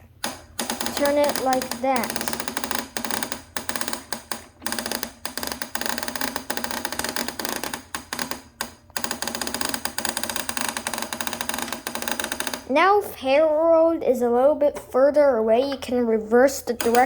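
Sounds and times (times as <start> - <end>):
toy train mechanism clattering: 0.2 - 12.6, 16.8 - 17.0.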